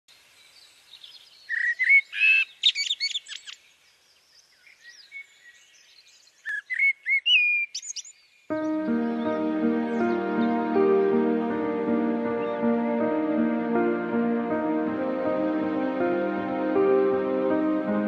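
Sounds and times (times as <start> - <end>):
birds chirping and whistling: 1.0 - 3.6, 4.6 - 9.4.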